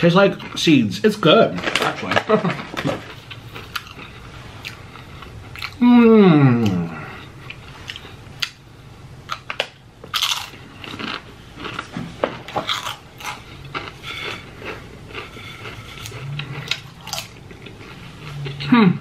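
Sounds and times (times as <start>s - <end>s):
mouth sounds chewing: 3.0s - 8.6s, 10.1s - 18.7s
tortilla chips crunching: 9.3s - 18.6s.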